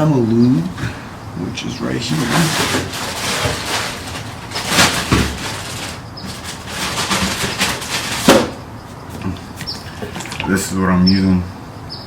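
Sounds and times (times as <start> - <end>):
rustling and scraping: 1.8 - 10.8.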